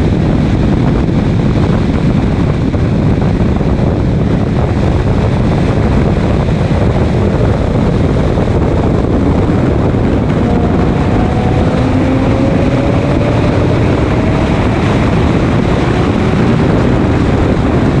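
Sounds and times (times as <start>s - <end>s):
race car running: 0.0s - 18.0s
rush of wind and road noise: 0.0s - 18.0s.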